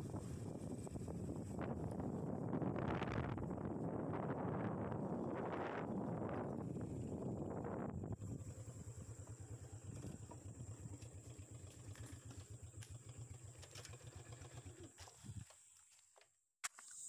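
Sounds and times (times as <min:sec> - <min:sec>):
small motorcycle engine putter: 0:09.4 - 0:15.4.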